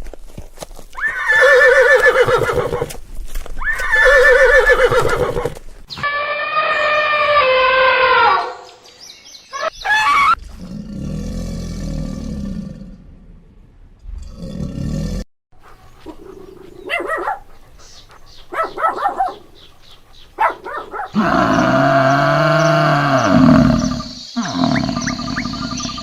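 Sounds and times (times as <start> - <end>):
horse whinnying: 1.0 - 3.0, 3.6 - 8.6, 21.2 - 26.0
lower animal calls: 20.4 - 26.0.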